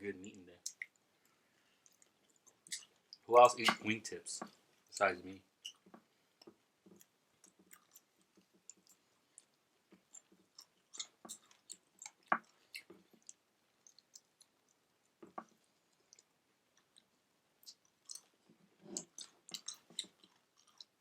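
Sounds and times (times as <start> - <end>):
chewing food: 0.6 - 3.8, 4.4 - 21.0
wet mouth clicks and smacks: 7.0 - 18.3, 18.9 - 21.0.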